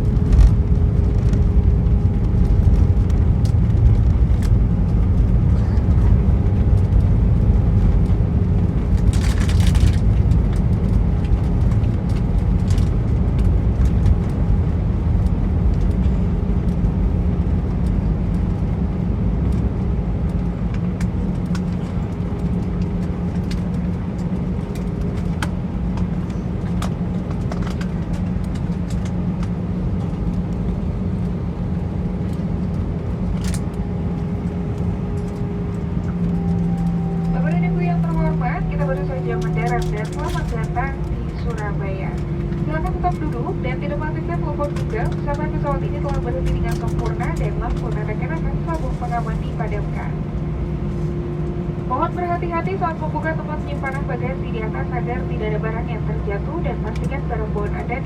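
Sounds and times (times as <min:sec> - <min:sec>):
aircraft rolling rumble: 0:00.0 - 0:58.0
engine hum: 0:00.0 - 0:58.0
light clicks and rattles: 0:35.1 - 0:50.0.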